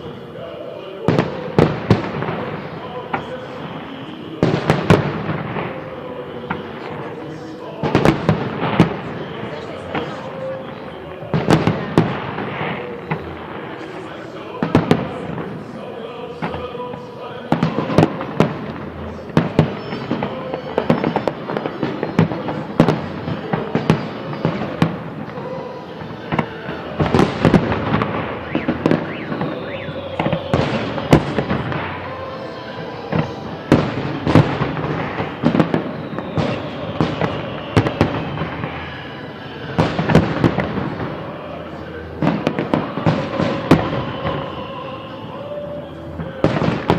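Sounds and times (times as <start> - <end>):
firework bangs: 0.0 - 46.9.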